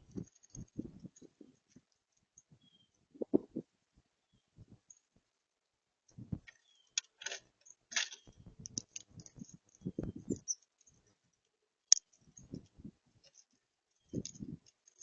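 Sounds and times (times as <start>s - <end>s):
birds knocking and scratching at feeder: 0.0s - 3.7s, 6.2s - 11.0s, 11.9s - 15.0s.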